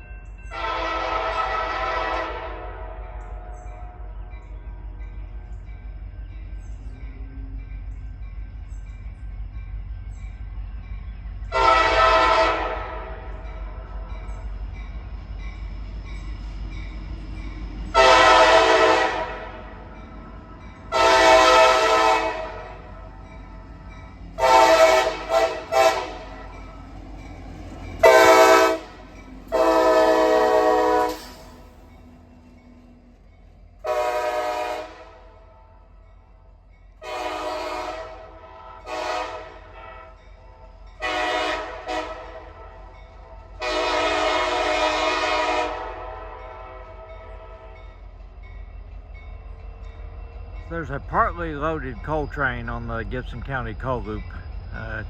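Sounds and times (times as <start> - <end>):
locomotive air horn blasts: 0.5 - 3.4, 11.5 - 13.3, 17.9 - 19.7, 20.9 - 22.8, 24.4 - 26.4, 28.0 - 31.3, 33.8 - 35.3, 37.0 - 40.2, 41.0 - 42.8, 43.6 - 47.8.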